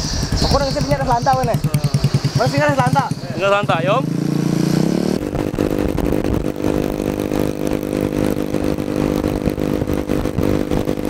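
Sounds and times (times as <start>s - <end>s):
motorcycle engine running: 0.0s - 11.0s
wind rumbling on microphone: 4.8s - 11.0s.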